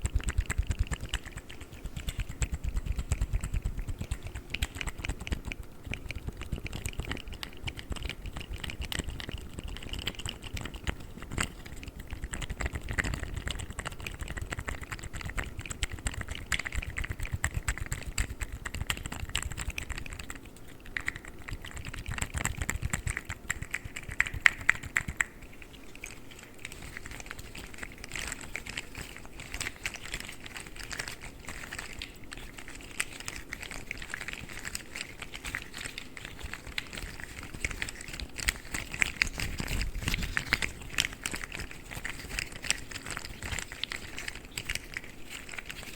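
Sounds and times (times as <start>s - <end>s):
plastic toys clicking and rattling: 26.5s - 45.9s.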